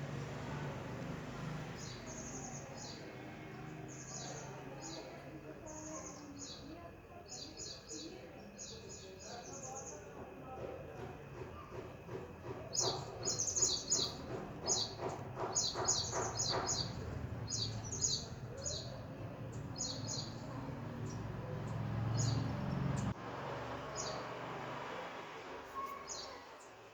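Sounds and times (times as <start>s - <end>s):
birds chirping: 0.0s - 23.2s, 23.8s - 24.3s, 25.8s - 26.9s.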